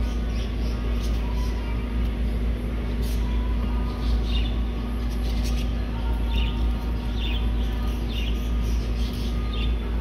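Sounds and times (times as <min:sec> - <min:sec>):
small bird chirping: 0:03.0 - 0:10.0.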